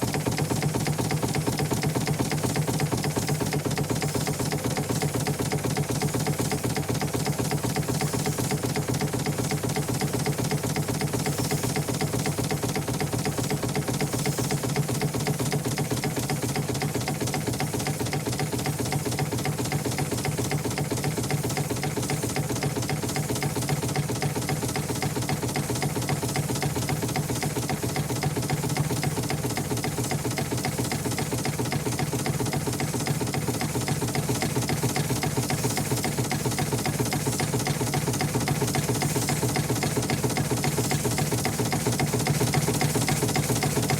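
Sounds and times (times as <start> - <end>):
engine running steadily: 0.0 - 43.9.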